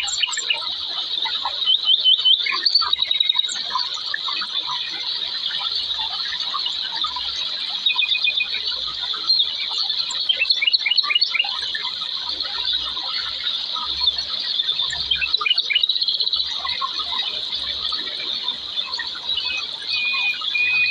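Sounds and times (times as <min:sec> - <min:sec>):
high-pitched insect drone: 0:11.5 - 0:20.9.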